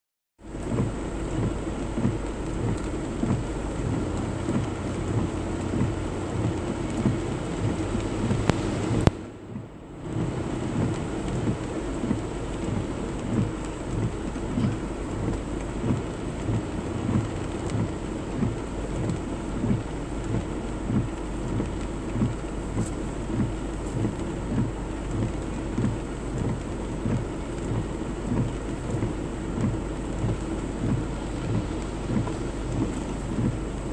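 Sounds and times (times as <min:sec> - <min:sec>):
heavy rain on a moving car: 0:00.4 - 0:33.9
low rumble: 0:29.7 - 0:33.9.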